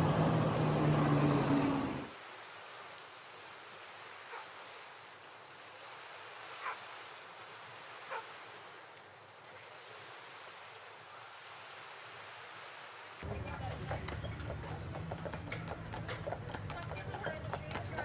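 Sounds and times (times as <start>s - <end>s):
outdoor background hiss: 0.0s - 13.2s.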